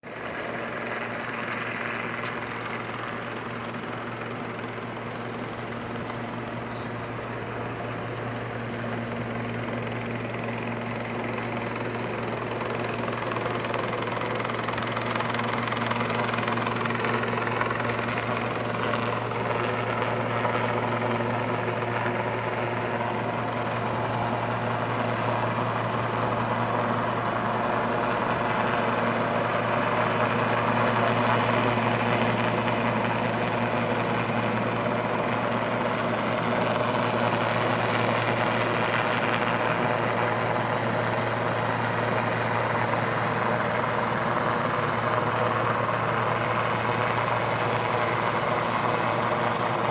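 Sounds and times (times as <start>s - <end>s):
helicopter flying overhead: 0.0s - 49.9s.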